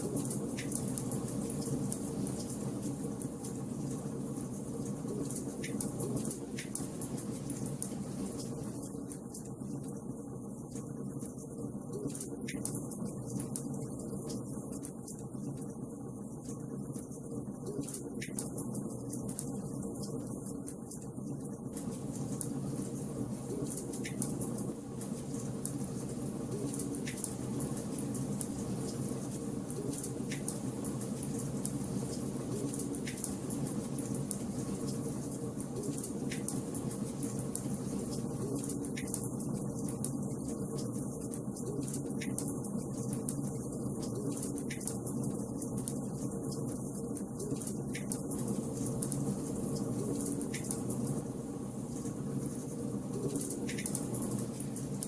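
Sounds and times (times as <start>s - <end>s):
fire crackling: 17.8s - 55.0s
fireplace flames rushing: 21.3s - 55.0s.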